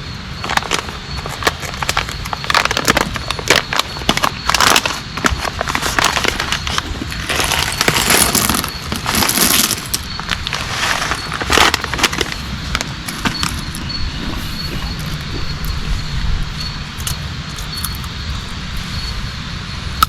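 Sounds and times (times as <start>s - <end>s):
low rumble: 12.4s - 20.0s.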